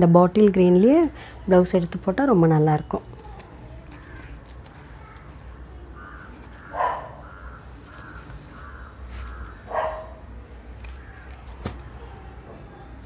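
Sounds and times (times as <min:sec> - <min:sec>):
bird calling: 0:05.7 - 0:12.2.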